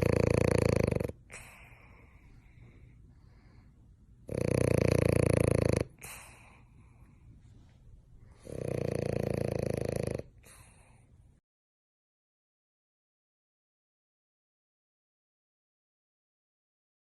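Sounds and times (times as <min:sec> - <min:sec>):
pet snoring loudly: 0:00.0 - 0:01.8, 0:04.2 - 0:06.6, 0:08.4 - 0:10.7.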